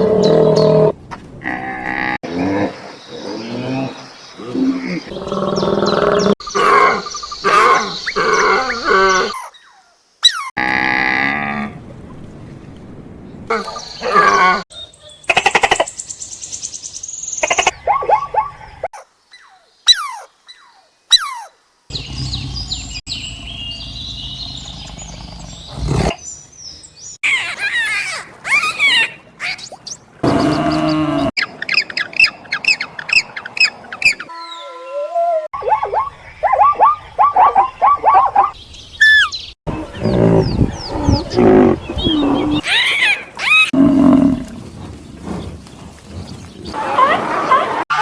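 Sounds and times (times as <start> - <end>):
animal calls: 17.4 - 18.9, 27.3 - 44.5.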